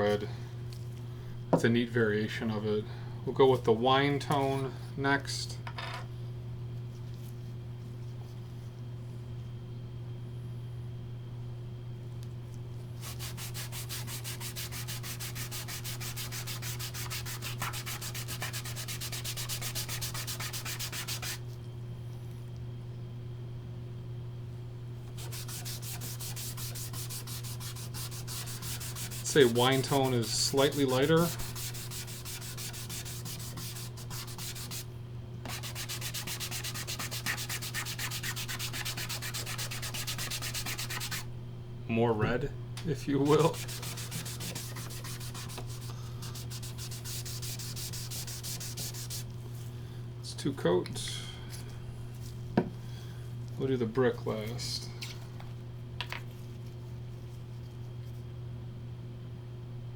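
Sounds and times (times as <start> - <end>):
steady low hum: 0.0 - 59.9
rapid rubbing on wood: 13.0 - 21.4, 25.2 - 34.8, 35.5 - 41.2, 43.2 - 49.2.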